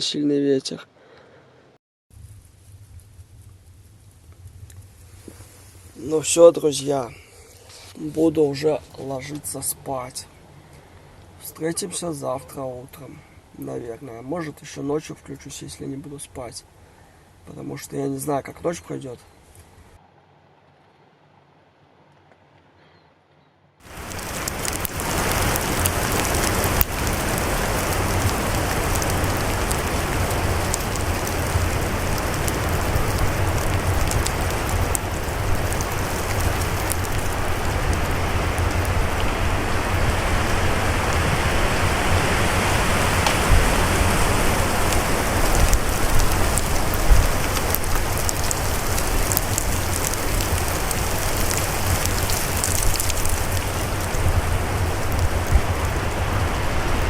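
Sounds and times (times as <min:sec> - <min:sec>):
wind rumble on microphone: 0:02.1 - 0:06.5, 0:23.9 - 0:57.0
crackle of driven snow: 0:02.1 - 0:11.9, 0:23.8 - 0:57.0
wind roaring through forest: 0:02.1 - 0:22.6, 0:23.8 - 0:57.0.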